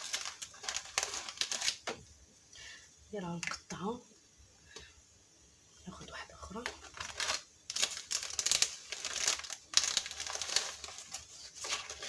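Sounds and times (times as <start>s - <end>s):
rice paper crackling: 0.0s - 1.9s, 6.5s - 12.0s.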